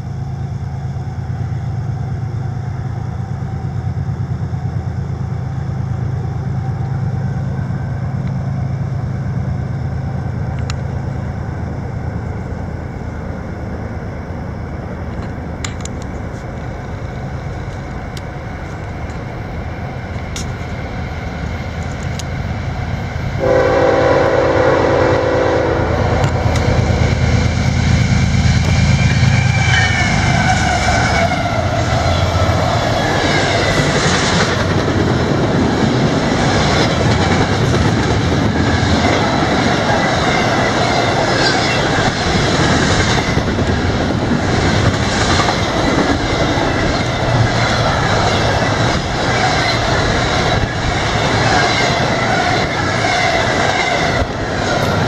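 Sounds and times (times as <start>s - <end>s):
train horn blast: 23.4s - 27.2s, 29.4s - 31.4s
high wheel squeals: 28.7s - 33.7s, 45.7s - 55.0s.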